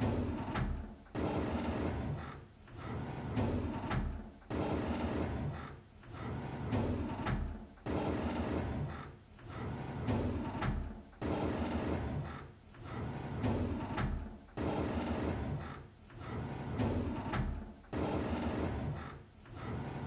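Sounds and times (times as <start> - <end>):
drawer sliding open: 9.4 - 11.0, 16.2 - 20.0.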